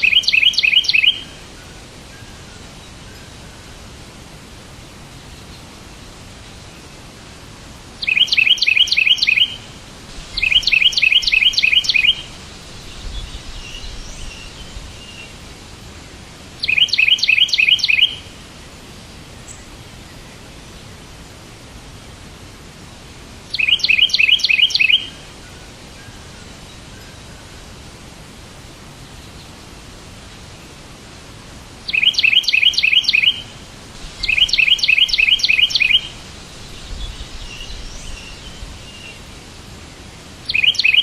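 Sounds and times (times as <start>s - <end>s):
bird chirping bursts: 0.0s - 1.4s, 8.0s - 15.4s, 16.6s - 18.4s, 23.5s - 25.2s, 31.9s - 39.3s, 40.4s - 41.0s
steady background hiss: 0.0s - 41.0s
faint soft bird warble: 31.9s - 39.4s.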